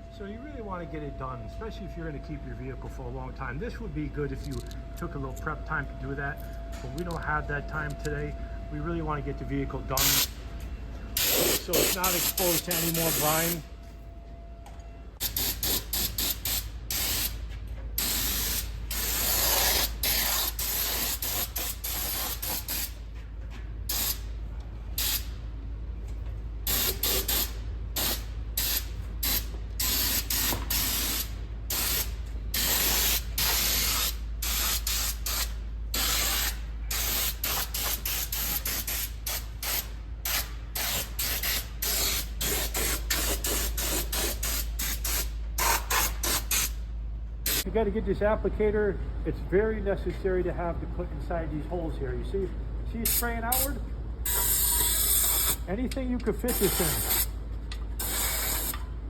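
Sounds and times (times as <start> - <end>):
steady low hum: 0.0 - 59.0
spray applicator hissing: 11.2 - 13.5, 15.2 - 17.4, 18.0 - 23.0, 26.7 - 46.7, 54.3 - 55.6, 56.5 - 57.3, 58.0 - 58.8.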